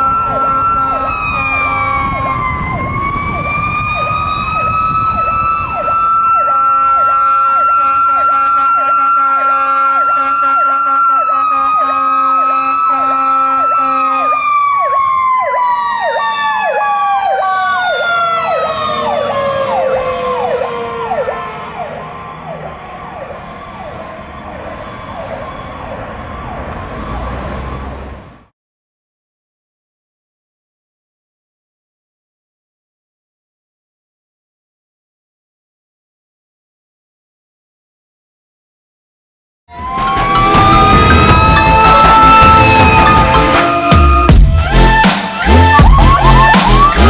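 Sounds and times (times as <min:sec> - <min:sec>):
siren wailing: 0:00.0 - 0:28.3, 0:39.7 - 0:47.0
siren yelping: 0:00.0 - 0:28.3, 0:39.7 - 0:47.0.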